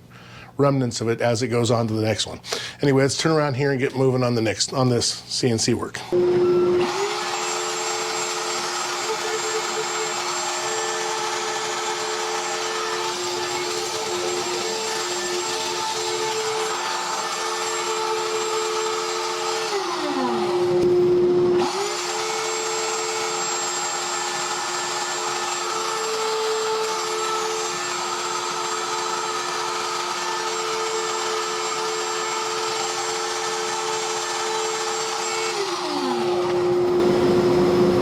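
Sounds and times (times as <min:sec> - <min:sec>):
router spindle whine: 0:06.0 - 0:38.0
motor tones shifting pitch: 0:06.2 - 0:12.1, 0:36.2 - 0:38.0.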